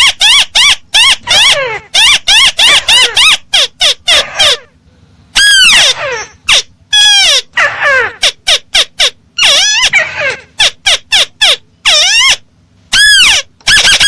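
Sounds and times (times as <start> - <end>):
crake calling with harsh notes: 0.0 - 14.0.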